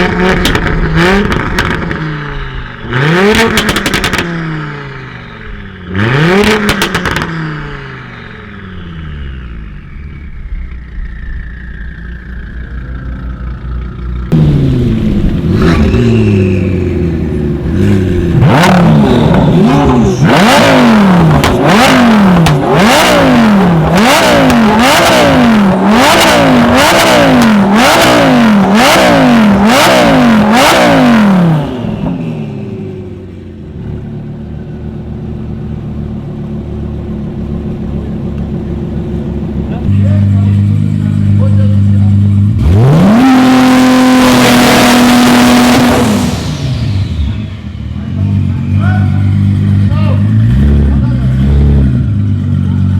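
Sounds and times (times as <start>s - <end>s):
sharp exhaust cracks: 0.0s - 4.5s, 5.8s - 32.8s
car engine revving: 0.0s - 52.9s.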